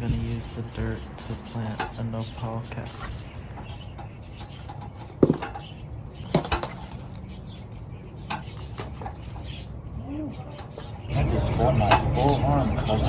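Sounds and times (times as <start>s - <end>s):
sharp knocks: 3.6s - 5.7s.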